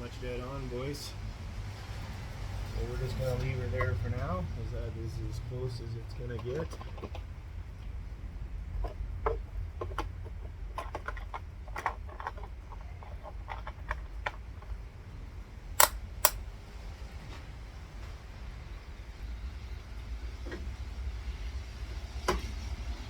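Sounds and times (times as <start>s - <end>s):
low steady rumble: 0.0s - 23.0s
light clicks and taps: 3.3s - 4.3s, 6.1s - 8.0s
sharp loud clicks: 15.8s - 16.4s.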